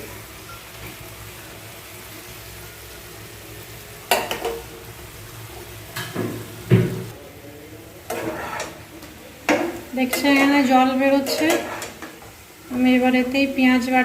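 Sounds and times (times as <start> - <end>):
chicken sizzling in hot oil: 0.0 - 14.0
utensil scraping and knocking pan: 8.1 - 8.8, 9.5 - 12.2.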